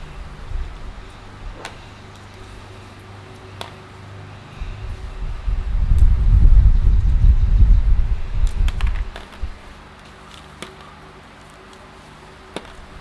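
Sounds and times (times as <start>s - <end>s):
wind buffeting microphone: 0.0s - 2.0s, 4.6s - 9.7s.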